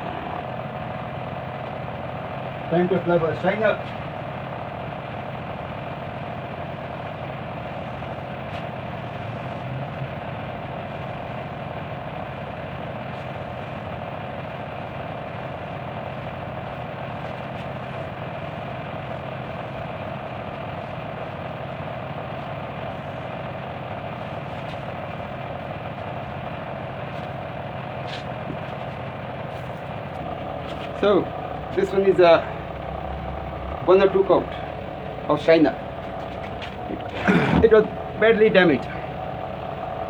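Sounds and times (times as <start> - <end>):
motor humming: 0.0 - 2.3, 26.1 - 40.0.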